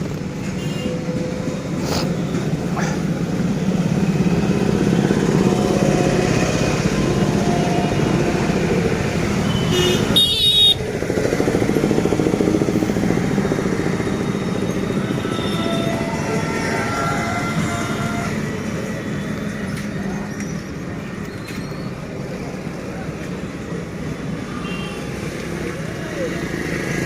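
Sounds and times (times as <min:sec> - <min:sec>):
motorcycle engine rumbling: 0:00.0 - 0:24.4
vehicle horn toot: 0:09.4 - 0:10.8, 0:15.0 - 0:18.3.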